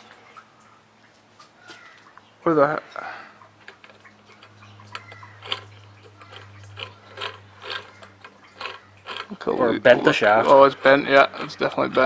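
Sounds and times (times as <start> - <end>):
turbo wheel scraping and clicking: 3.6 - 12.0.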